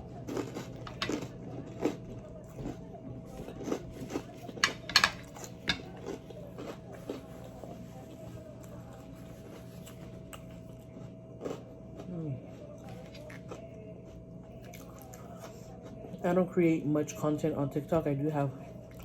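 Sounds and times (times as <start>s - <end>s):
chewing: 0.0s - 16.2s
cutlery clicking against plate: 0.8s - 1.3s, 4.5s - 6.2s.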